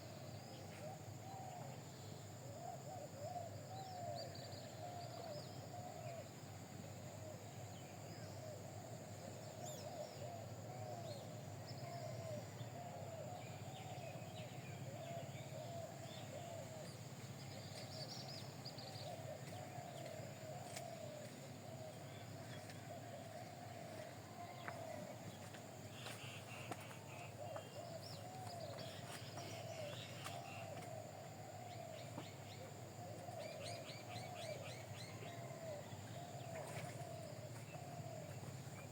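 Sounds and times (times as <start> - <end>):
warbling bird chorus: 9.6 - 38.9.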